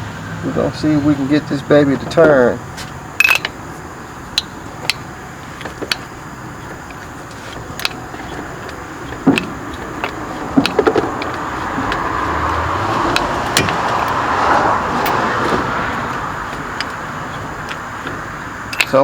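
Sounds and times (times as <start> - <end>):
metal wrench clicking on engine: 3.2 - 3.7, 4.3 - 19.0
rushing noise: 7.2 - 18.8.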